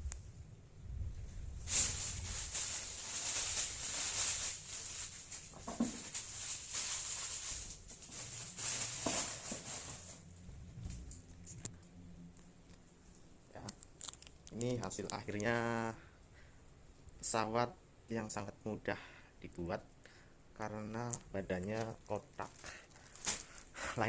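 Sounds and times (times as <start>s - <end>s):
plastic sheeting crinkling: 1.6s - 10.3s, 21.0s - 23.8s.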